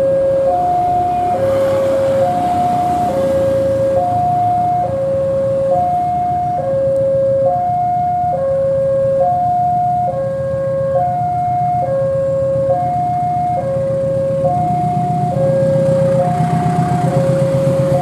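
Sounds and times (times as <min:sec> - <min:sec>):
diesel locomotive idling: 0:00.0 - 0:07.4, 0:13.1 - 0:18.0
two-tone railway warning alarm: 0:00.0 - 0:18.0.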